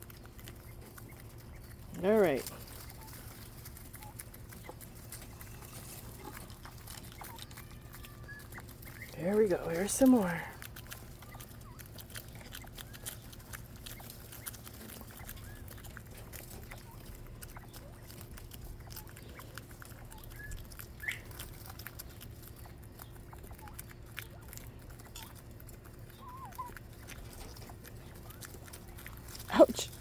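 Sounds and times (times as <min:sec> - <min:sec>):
quail clicking and scratching: 0:00.0 - 0:30.0
steady low hum: 0:00.0 - 0:30.0.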